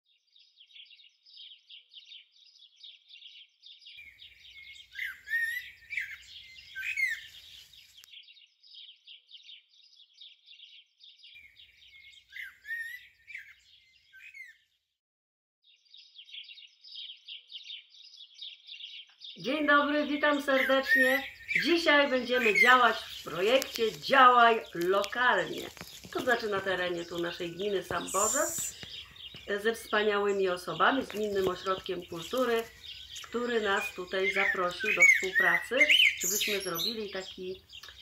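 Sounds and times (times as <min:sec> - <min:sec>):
small birds twittering: 0:00.2 - 0:14.6, 0:15.6 - 0:38.0.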